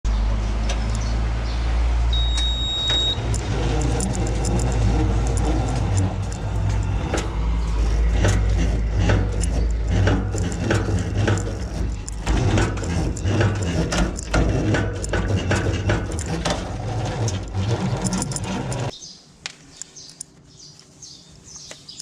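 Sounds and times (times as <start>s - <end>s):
forklift engine running: 0.1s - 19.0s
high beep: 2.1s - 3.2s
metal clinks and knocks: 3.2s - 19.0s.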